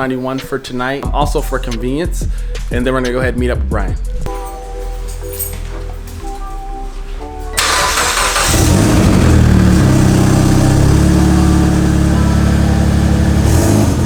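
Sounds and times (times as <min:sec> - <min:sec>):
car engine idling: 0:07.1 - 0:14.0
starter motor cranking: 0:07.6 - 0:09.7.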